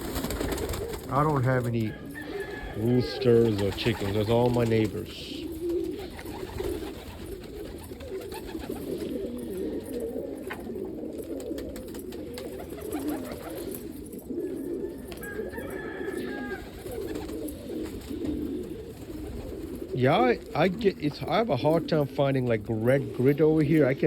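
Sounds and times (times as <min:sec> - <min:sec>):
pigeons cooing: 0:00.0 - 0:24.0
faint rooster crowing: 0:01.5 - 0:03.8, 0:14.7 - 0:17.0.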